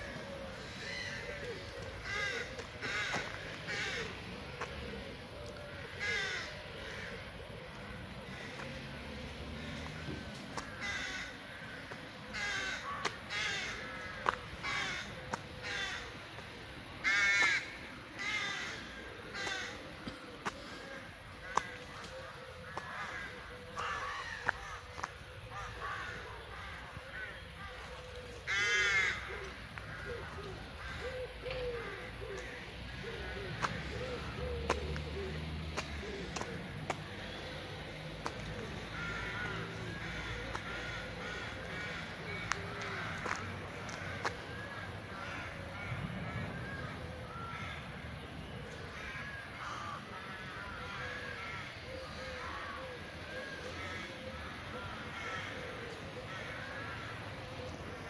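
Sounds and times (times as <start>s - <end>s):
birds calling: 0.0s - 58.0s.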